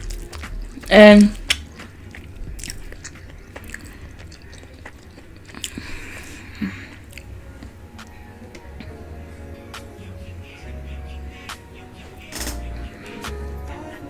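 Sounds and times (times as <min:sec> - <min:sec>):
chewing and mouth sounds: 0:00.0 - 0:09.0.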